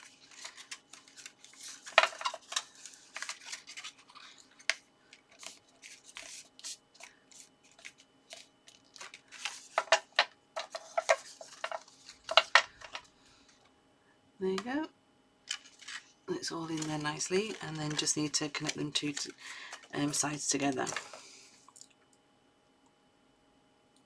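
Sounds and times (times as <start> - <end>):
card stock rustling and clicking: 0.0 - 13.1, 15.5 - 21.2.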